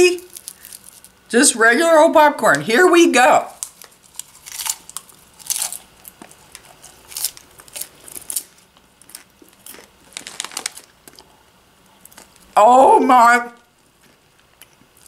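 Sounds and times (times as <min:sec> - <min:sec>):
popcorn being chewed: 0:00.2 - 0:01.3, 0:03.5 - 0:12.6, 0:13.6 - 0:15.0.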